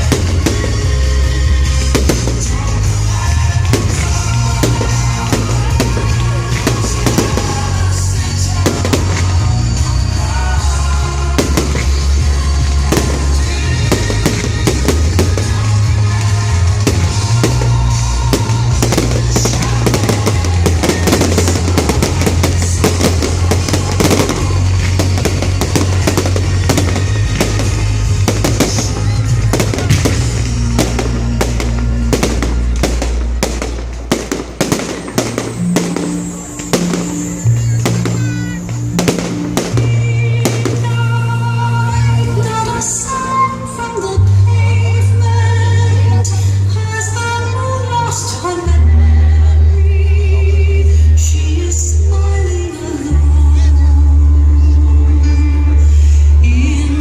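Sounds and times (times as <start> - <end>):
fireworks bangs and crackles: 0.0 - 43.5
loud music with heavy bass: 0.0 - 57.0.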